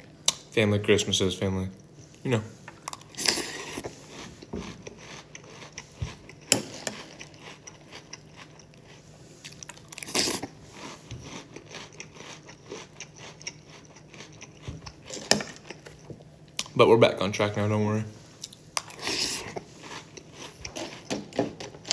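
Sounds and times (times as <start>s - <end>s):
chewing crunchy cereal: 2.8s - 16.8s, 18.4s - 21.9s.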